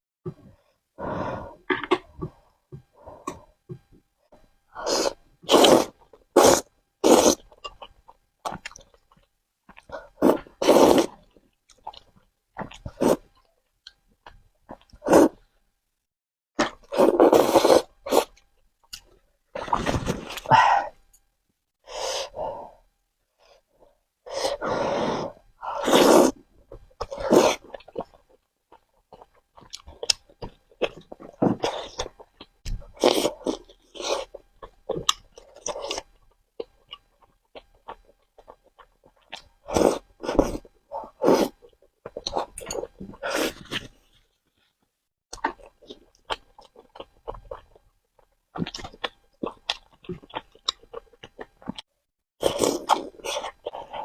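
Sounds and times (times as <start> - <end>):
noodle slurping: 4.8 - 7.4, 10.2 - 11.1, 25.2 - 26.4
wet chewing: 45.3 - 54.0.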